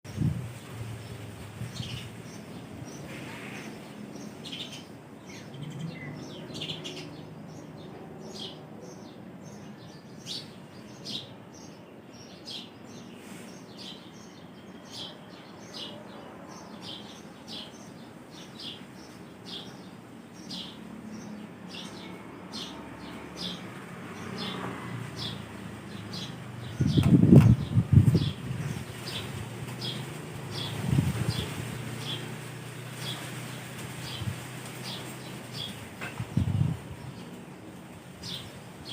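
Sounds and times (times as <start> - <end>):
faint wind: 0.0 - 38.9
small birds chirping: 0.1 - 38.9.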